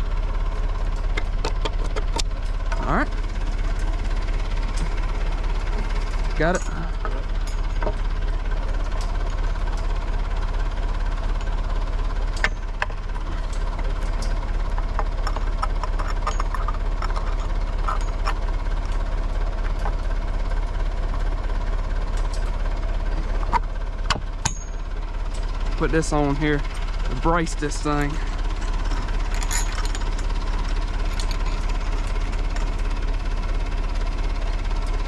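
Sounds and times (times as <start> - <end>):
diesel engine idling: 0.0 - 35.0
metal clinks and knocks: 4.6 - 9.9, 12.3 - 20.3, 24.3 - 33.7.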